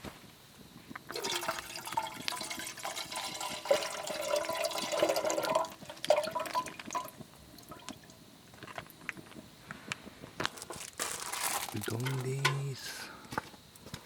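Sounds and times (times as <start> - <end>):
water pouring into container: 1.1 - 8.0.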